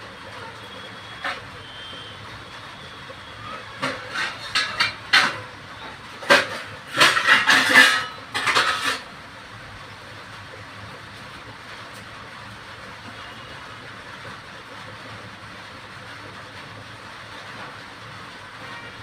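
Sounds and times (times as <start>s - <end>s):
metal dishes and utensils clattering: 3.6s - 9.1s.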